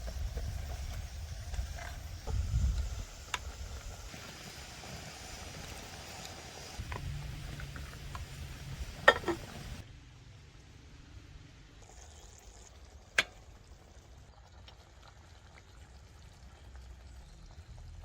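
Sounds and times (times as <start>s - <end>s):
low steady rumble: 6.8s - 11.8s.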